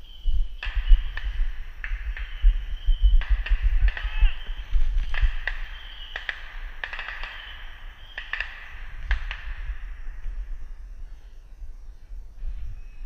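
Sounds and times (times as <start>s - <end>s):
sharp irregular clicks: 5.0s - 7.4s, 8.1s - 9.5s.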